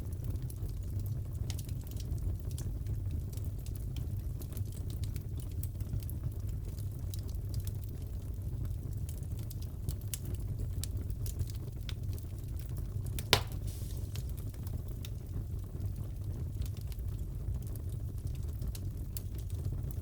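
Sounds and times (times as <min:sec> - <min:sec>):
fire crackles: 0:00.0 - 0:20.0
low rumble of burning wood: 0:00.0 - 0:20.0
loud fire pop: 0:13.2 - 0:14.6.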